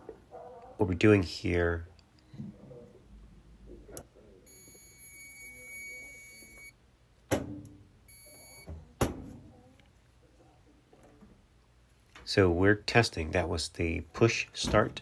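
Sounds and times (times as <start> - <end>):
multimeter continuity beeps: 4.5 - 6.8, 8.1 - 8.8.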